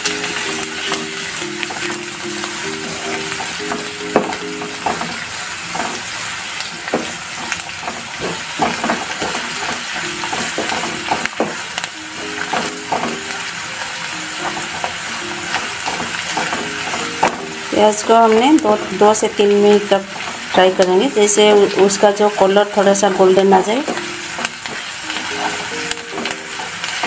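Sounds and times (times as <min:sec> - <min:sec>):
onions sizzling in oil: 0:00.0 - 0:27.0
utensil scraping and knocking pan: 0:06.8 - 0:11.6.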